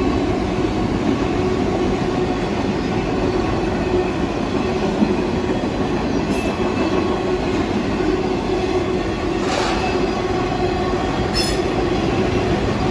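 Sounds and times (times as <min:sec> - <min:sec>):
freight train wheels rumbling: 0:00.0 - 0:12.9
high-pitched wheel squeals: 0:09.4 - 0:10.2, 0:11.3 - 0:12.0.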